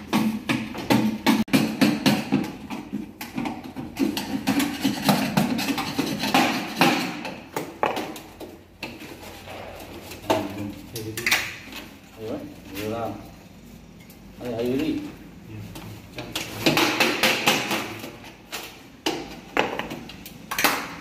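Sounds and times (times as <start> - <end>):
sheet metal knocks and clatter: 0.0 - 10.6, 16.3 - 18.2.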